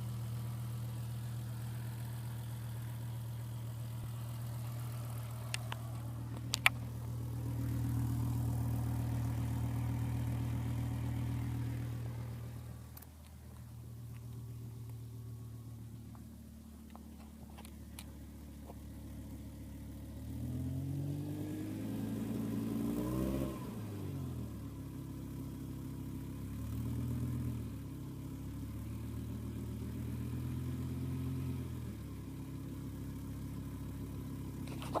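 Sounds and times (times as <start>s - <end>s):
car engine revving: 0.0s - 24.7s
high engine whine: 0.0s - 25.2s.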